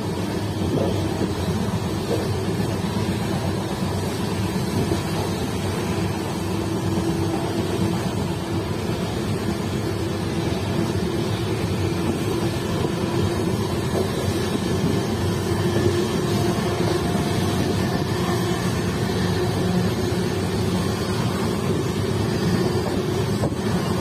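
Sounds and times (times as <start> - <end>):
train wheels on rail: 0.0 - 24.0.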